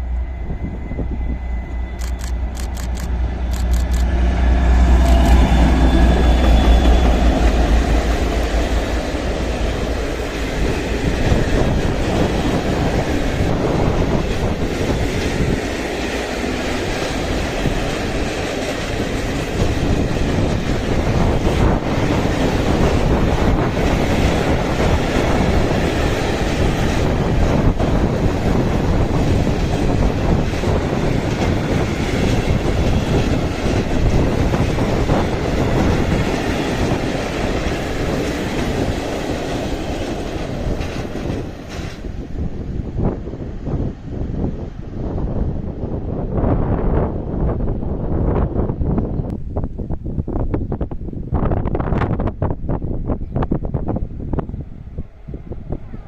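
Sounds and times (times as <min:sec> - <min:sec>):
locomotive humming: 0:00.0 - 0:49.4
train wheels clattering on rails: 0:05.0 - 0:42.3.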